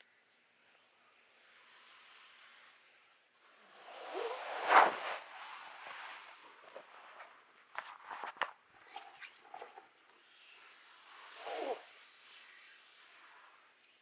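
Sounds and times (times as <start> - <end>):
swish of hands over skin: 3.8 - 7.4.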